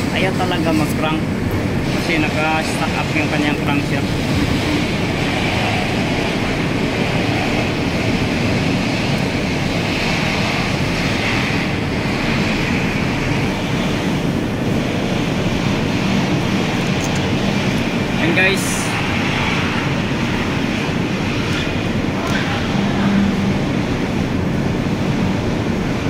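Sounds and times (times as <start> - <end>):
background rumble and hiss: 0.0 - 26.0.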